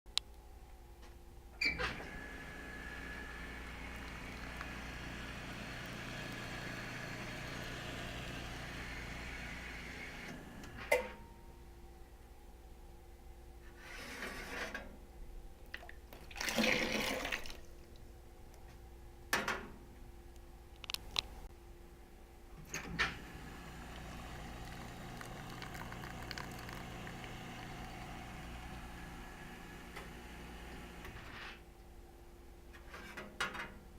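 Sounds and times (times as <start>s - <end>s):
espresso machine humming and hissing: 2.0s - 10.8s, 23.0s - 31.3s.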